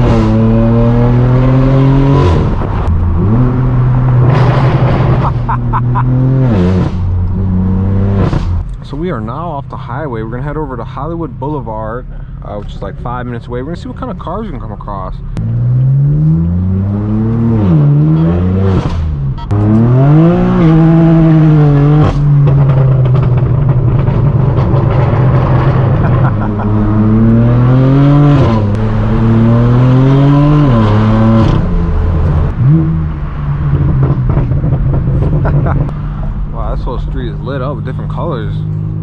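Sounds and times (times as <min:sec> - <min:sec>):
car engine accelerating through gears: 0:00.0 - 0:08.6, 0:15.3 - 0:36.6
exhaust cracks: 0:00.0 - 0:18.0, 0:18.6 - 0:39.0.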